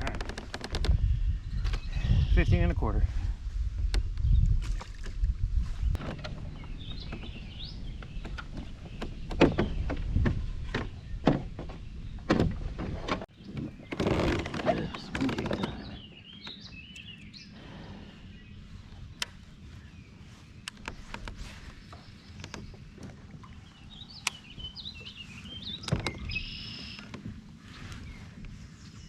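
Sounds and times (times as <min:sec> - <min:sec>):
knocks and thumps of gear: 0:06.0 - 0:15.8
bird chirps: 0:06.3 - 0:09.9, 0:14.7 - 0:27.1.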